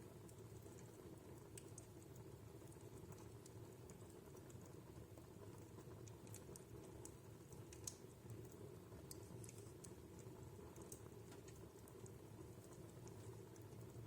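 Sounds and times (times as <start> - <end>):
wood fire crackling: 0.0 - 14.0
burning logs popping: 0.1 - 14.0.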